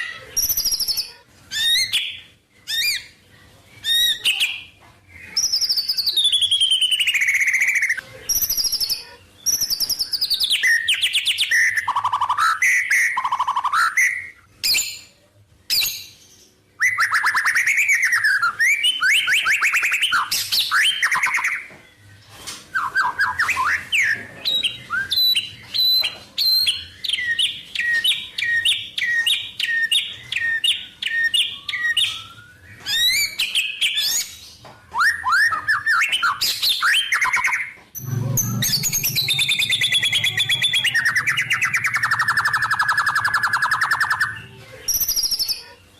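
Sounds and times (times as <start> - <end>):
songbird singing varied song: 22.8 - 34.3.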